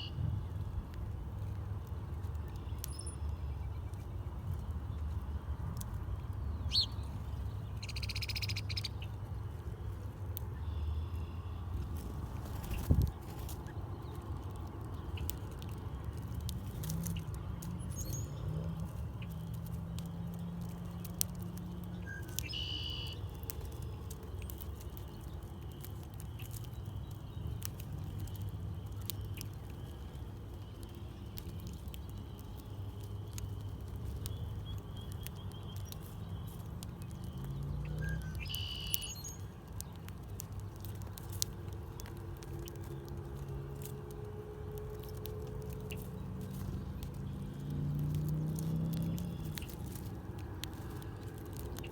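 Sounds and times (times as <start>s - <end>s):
birds pecking at seed: 0.0s - 51.9s
short high bird chirp: 38.4s - 39.3s.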